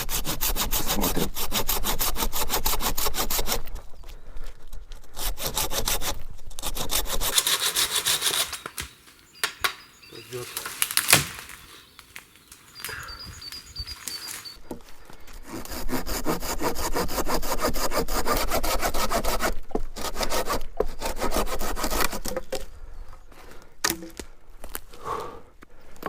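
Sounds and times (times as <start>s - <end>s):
hand saw cutting log: 6.7s - 12.8s, 15.6s - 18.6s.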